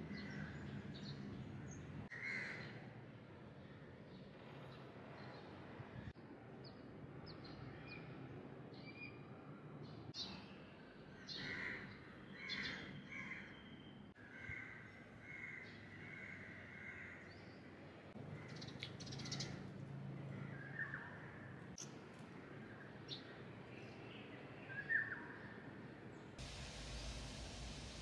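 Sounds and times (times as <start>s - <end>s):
birds chirping and calling: 18.3s - 19.7s.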